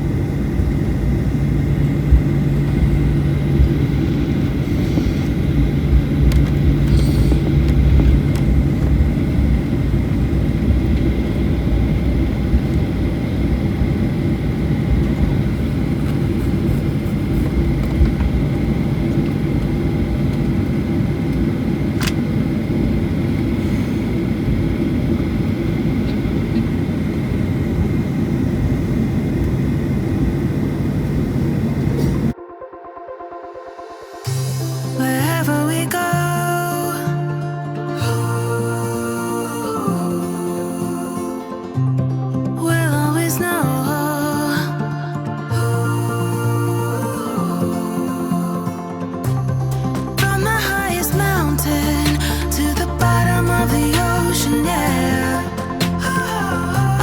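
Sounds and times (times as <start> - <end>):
jet engine rumble: 0.0 - 35.9.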